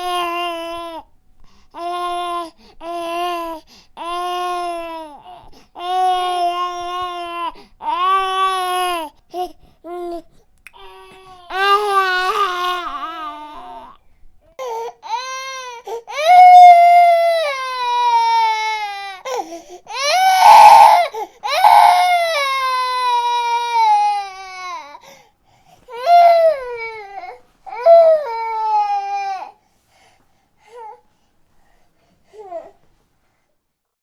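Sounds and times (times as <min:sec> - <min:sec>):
baby crying: 0:00.0 - 0:01.1, 0:01.8 - 0:10.2, 0:10.8 - 0:14.0, 0:14.6 - 0:25.1, 0:25.9 - 0:29.6.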